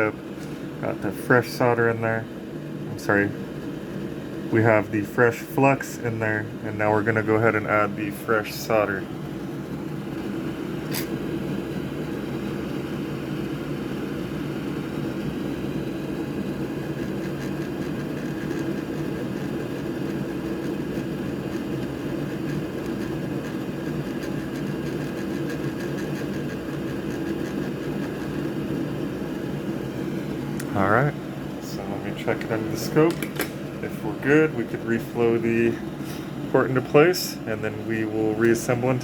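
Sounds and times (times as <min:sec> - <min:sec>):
fan whirring hum: 0:00.0 - 0:39.0
sharp click: 0:10.9 - 0:11.2, 0:33.1 - 0:33.6.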